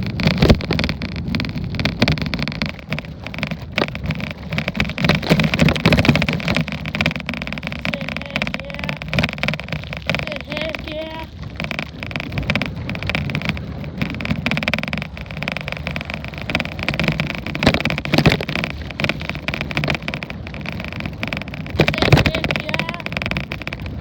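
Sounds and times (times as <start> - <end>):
bicycle knocks and jolts: 0.0 - 24.0
bicycle rolling and rattling: 0.0 - 24.0.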